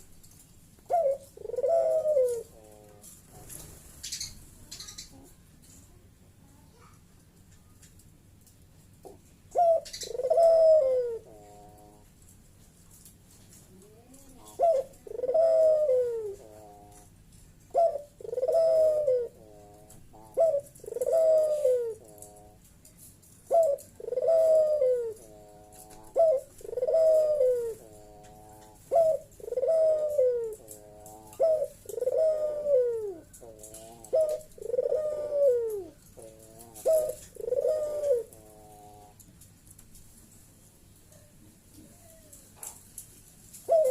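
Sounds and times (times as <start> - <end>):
dove cooing: 0.8 - 5.4, 9.0 - 12.1, 13.7 - 22.7, 23.4 - 39.2, 43.6 - 43.9.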